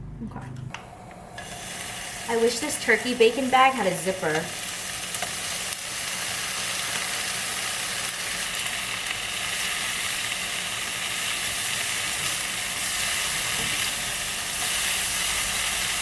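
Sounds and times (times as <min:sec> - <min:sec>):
bacon sizzling in a pan: 0:01.4 - 0:16.0.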